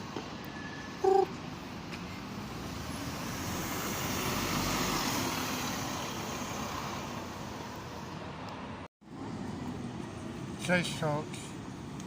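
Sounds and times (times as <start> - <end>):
large vehicle passing: 2.3 - 7.4.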